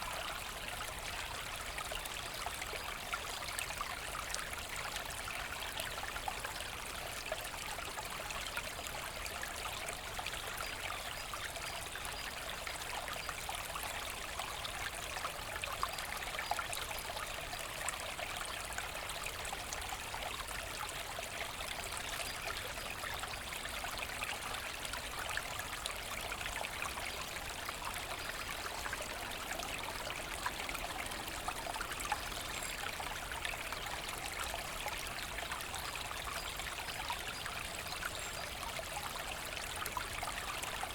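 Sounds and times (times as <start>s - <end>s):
brook babbling over stones: 0.0s - 40.9s.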